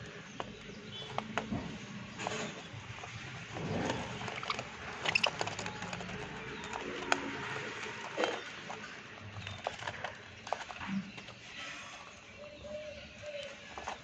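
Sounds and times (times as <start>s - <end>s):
lovebirds chirping: 0.0s - 14.0s.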